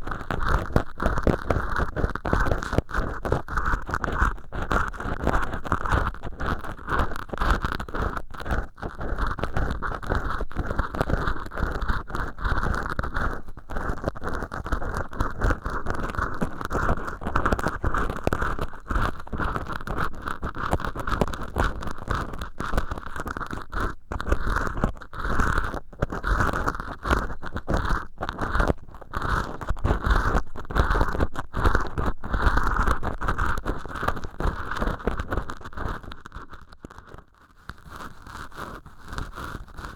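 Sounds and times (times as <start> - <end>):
earpick scraping sponge: 6.2 - 36.6.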